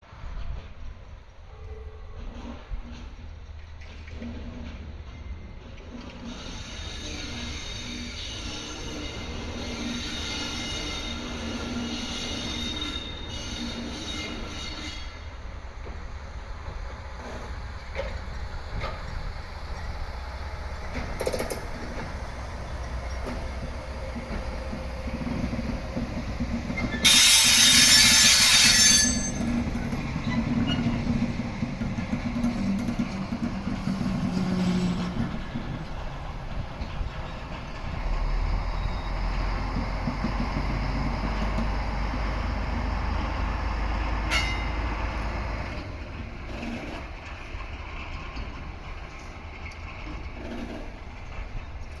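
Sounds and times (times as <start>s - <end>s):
train rail running noise: 0.0s - 52.0s
locomotive engine rumble: 13.2s - 52.0s.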